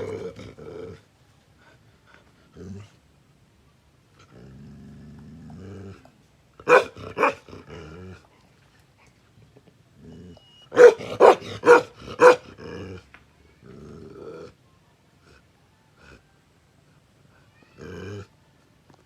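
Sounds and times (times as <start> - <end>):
dog growling: 4.2 - 6.1, 10.0 - 13.0, 13.6 - 14.6
dog barking: 6.6 - 7.4, 10.7 - 12.5.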